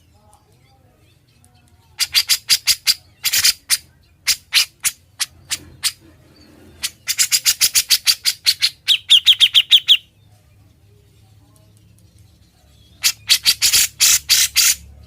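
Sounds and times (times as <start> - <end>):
bird harsh chattering song: 0.0 - 10.2, 12.0 - 15.0.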